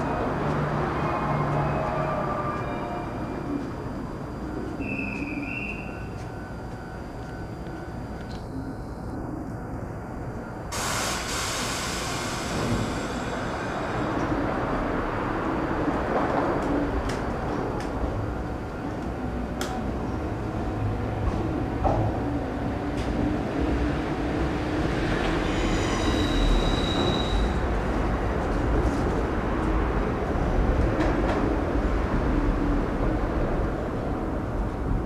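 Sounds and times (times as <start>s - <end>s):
electric train rumbling: 0.0s - 35.0s
high wheel squeal: 25.3s - 27.7s.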